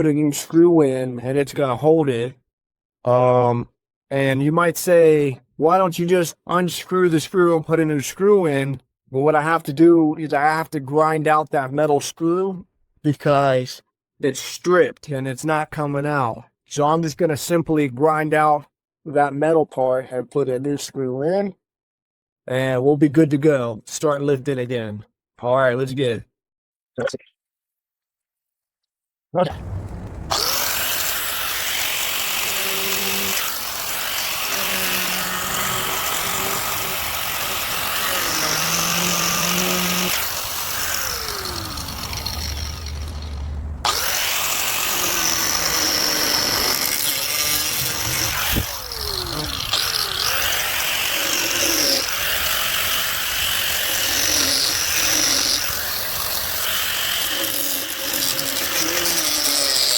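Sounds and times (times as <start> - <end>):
power grinder grinding metal: 29.6 - 59.9.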